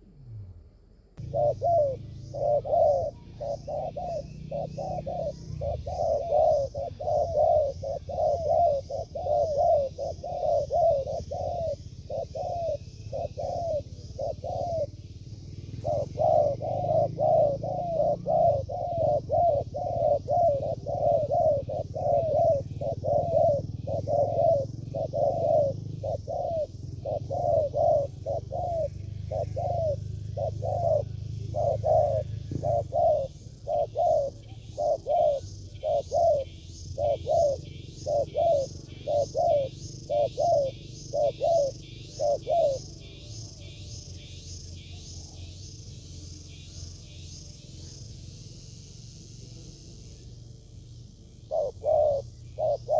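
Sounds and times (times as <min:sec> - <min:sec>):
doves cooing: 0:01.2 - 0:52.9.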